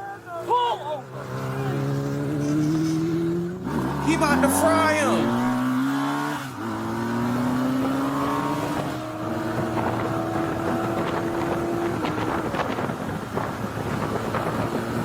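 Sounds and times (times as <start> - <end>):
motorcycle engine accelerating: 0.9 - 15.0
wind rushing over microphone: 3.0 - 15.0.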